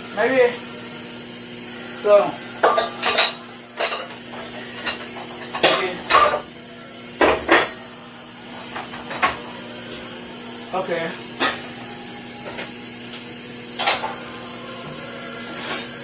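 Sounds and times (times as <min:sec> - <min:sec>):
steady background hum: 0:00.0 - 0:16.0
dishes and utensils clinking: 0:02.6 - 0:06.5, 0:07.2 - 0:07.8, 0:08.6 - 0:10.1, 0:11.3 - 0:14.3, 0:15.4 - 0:16.0.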